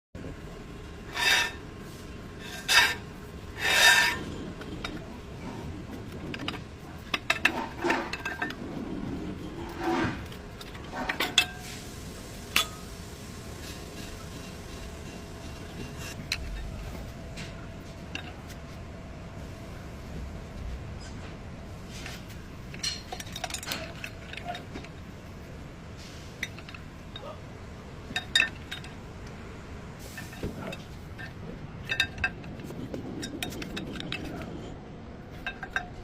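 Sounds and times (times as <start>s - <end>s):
rasping scraping on metal: 1.1s - 1.7s, 2.4s - 6.6s
metal clinks and knocks: 3.6s - 11.7s, 22.6s - 25.1s, 26.4s - 27.4s, 28.1s - 29.0s, 30.1s - 36.0s.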